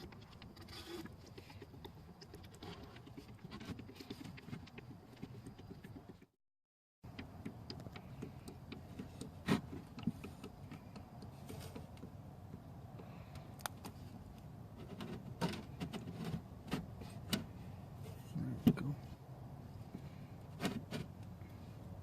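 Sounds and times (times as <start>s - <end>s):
low background hum: 7.1s - 22.0s.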